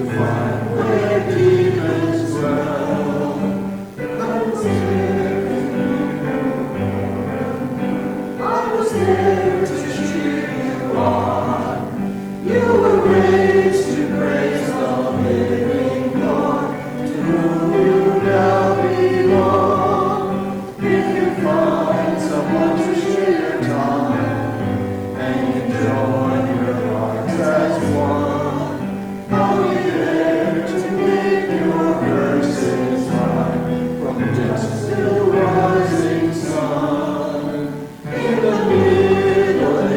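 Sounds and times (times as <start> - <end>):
congregation singing a hymn: 0.0 - 39.9
piano accompaniment: 0.0 - 39.9.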